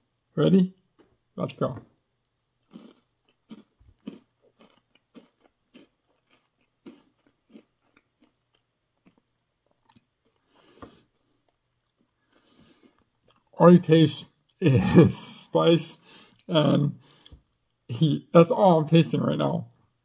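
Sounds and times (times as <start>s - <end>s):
crunchy crackers being chewed: 2.2s - 13.6s.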